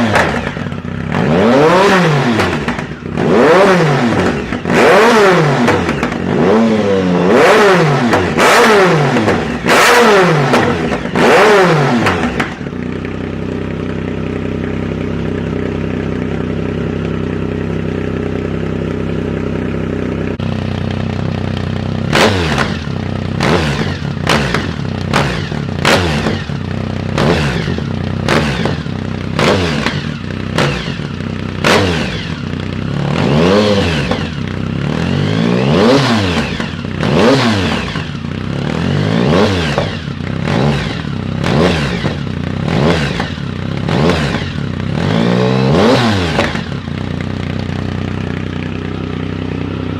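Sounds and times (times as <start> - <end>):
exhaust pops and cracks: 0.0 - 0.8, 21.1 - 26.4
motorcycle engine revving: 0.0 - 49.9.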